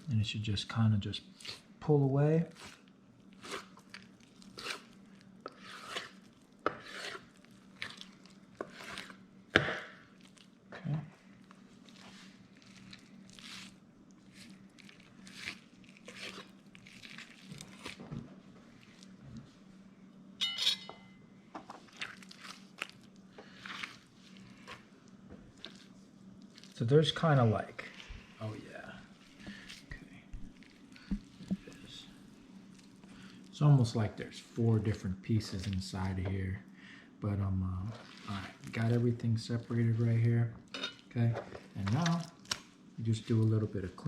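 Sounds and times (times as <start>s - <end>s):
meat tearing and rubbing: 2.4s - 9.3s, 10.0s - 10.6s, 11.2s - 19.2s, 21.8s - 33.5s, 37.8s - 40.3s, 41.7s - 44.0s
hands handling raw meat: 11.3s - 19.2s, 41.5s - 44.0s.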